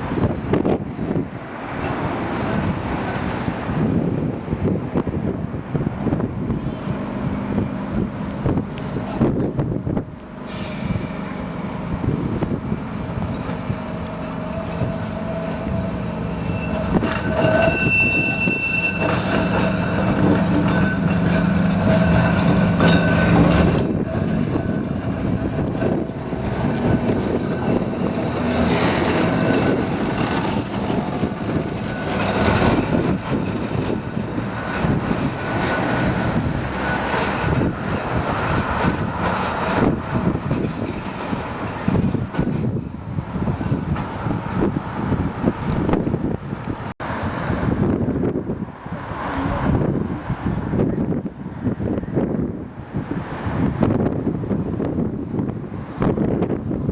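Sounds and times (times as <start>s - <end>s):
electric tram humming: 0.0s - 56.9s
tram wheel squeal: 6.5s - 8.0s, 10.2s - 45.7s.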